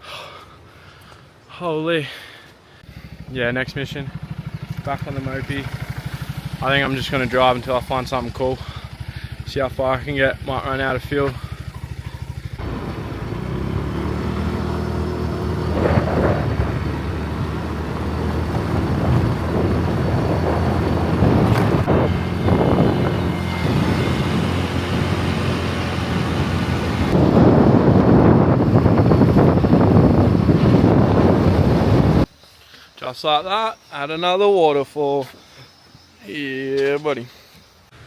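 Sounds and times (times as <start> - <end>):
moped engine running: 2.8 - 32.3
wind buffeting microphone: 9.0 - 32.3.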